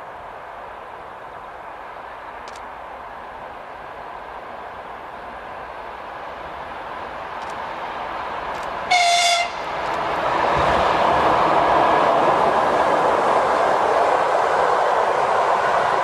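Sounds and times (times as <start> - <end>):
train wheels rushing on rail: 0.0 - 16.0
train horn blast: 8.9 - 9.7.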